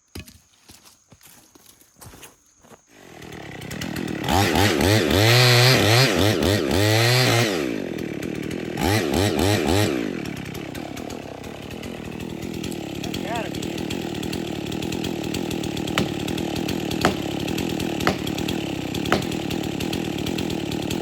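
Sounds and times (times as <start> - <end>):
chainsaw revving: 2.9 - 21.0.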